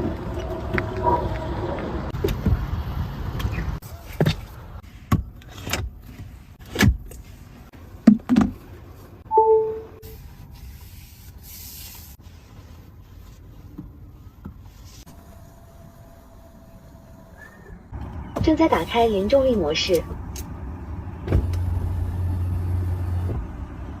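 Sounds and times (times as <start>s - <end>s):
two-note falling chime: 9.3s - 10.1s.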